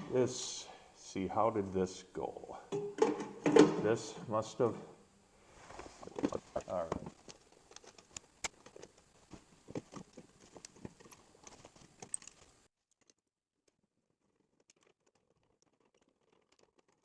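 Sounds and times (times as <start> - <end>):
background hiss: 0.0 - 12.7
small parts clicking and knocking: 6.1 - 17.0.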